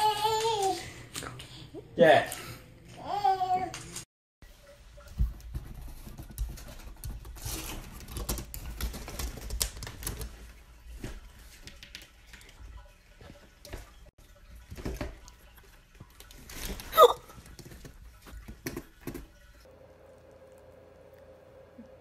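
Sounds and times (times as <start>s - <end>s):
rapid clicking and tapping: 5.6s - 10.4s.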